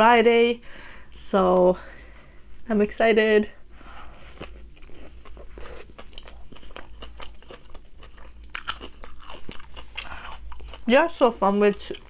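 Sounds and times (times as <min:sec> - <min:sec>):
chewing crunchy food: 0:04.0 - 0:12.0.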